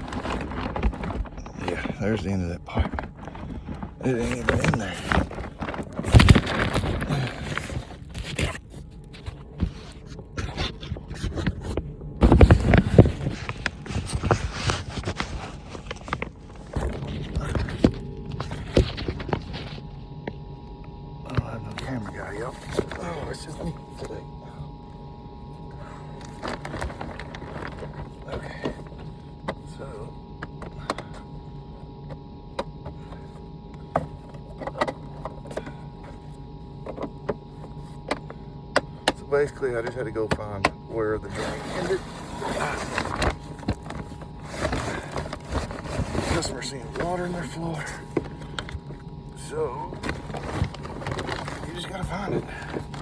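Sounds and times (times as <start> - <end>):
rustling and scraping of handling: 0.0 - 53.0
steady mechanical hum: 0.0 - 53.0
scattered knocks and clicks: 32.1 - 36.2.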